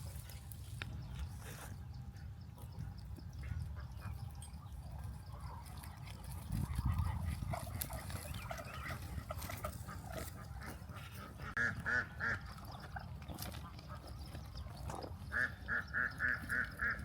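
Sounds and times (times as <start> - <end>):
ducks calling: 6.4 - 17.0.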